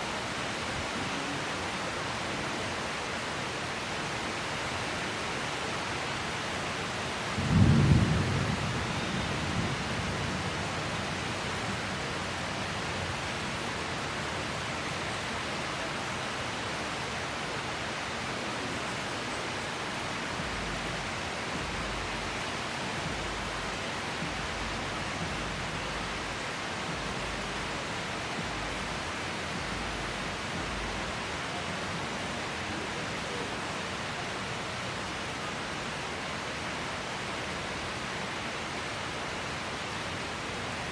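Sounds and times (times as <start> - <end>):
heavy rain hissing: 0.0 - 40.9
thunderclap rumbling: 7.4 - 13.2.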